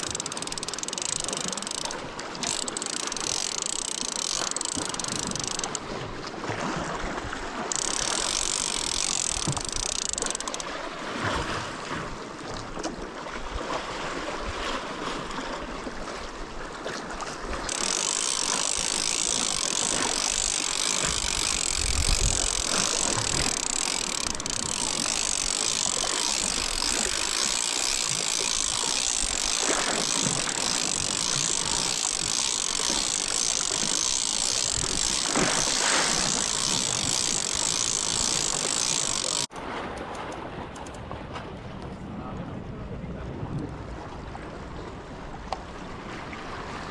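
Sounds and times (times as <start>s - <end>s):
wind buffeting microphone: 20.4s - 27.1s.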